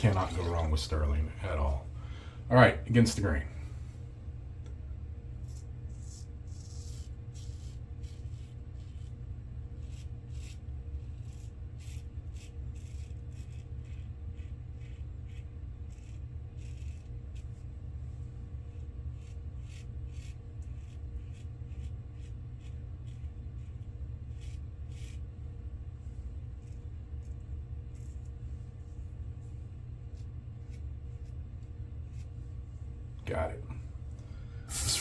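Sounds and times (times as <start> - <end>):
steady low hum: 0.0 - 35.0
razor scraping stubble: 5.4 - 17.8, 18.7 - 25.4, 34.7 - 35.0.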